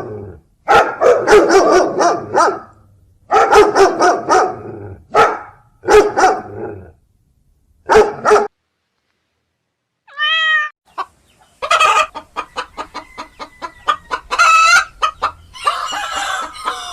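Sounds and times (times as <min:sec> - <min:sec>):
dog barking: 0:00.0 - 0:06.7, 0:07.8 - 0:08.6
cat meow: 0:10.1 - 0:10.8
chickens clucking: 0:10.9 - 0:16.9.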